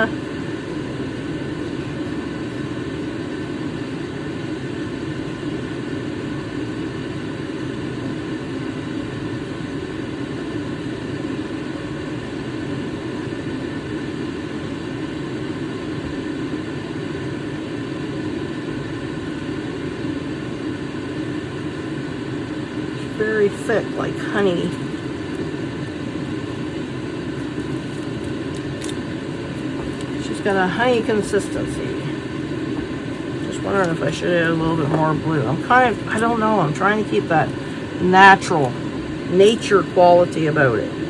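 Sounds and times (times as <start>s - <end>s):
faint steady tones: 0.0s - 41.0s.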